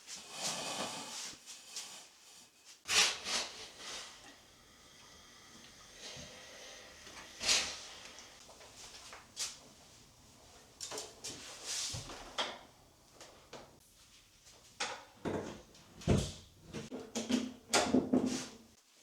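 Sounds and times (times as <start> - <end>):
objects knocking and clacking: 16.8 - 18.4.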